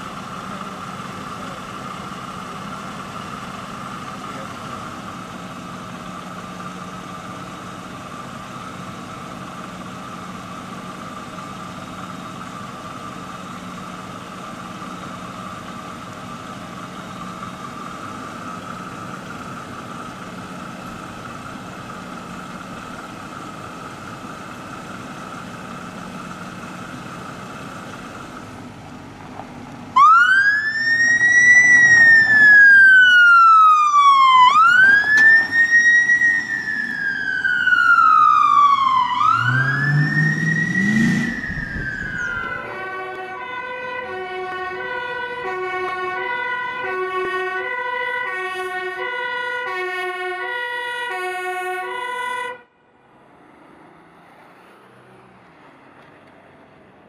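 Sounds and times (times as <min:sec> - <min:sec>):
engine hum: 0:00.0 - 0:57.0
police siren wailing: 0:30.0 - 0:52.8.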